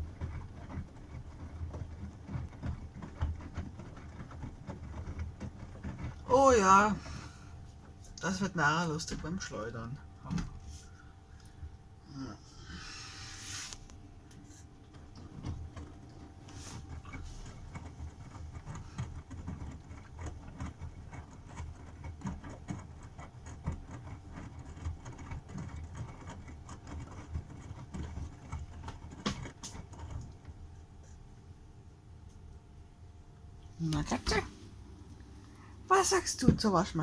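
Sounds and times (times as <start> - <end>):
washing machine drum tumbling: 0.0 - 10.8, 33.5 - 37.0.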